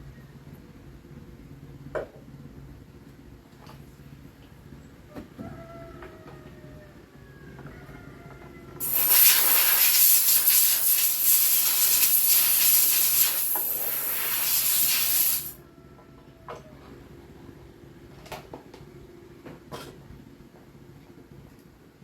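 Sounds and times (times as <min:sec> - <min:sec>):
pressurised spray hissing: 0:08.8 - 0:15.6.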